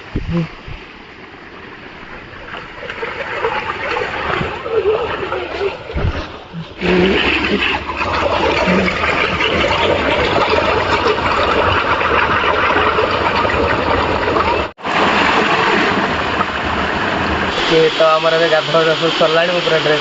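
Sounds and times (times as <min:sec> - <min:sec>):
waterfall rushing: 0:13.0 - 0:20.0.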